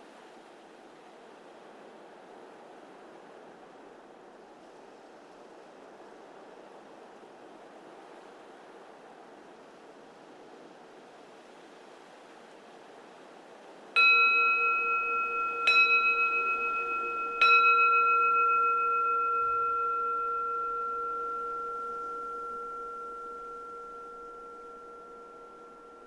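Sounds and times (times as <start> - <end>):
faint wind hiss: 0.0 - 26.0
bowl bell ringing: 14.0 - 26.0.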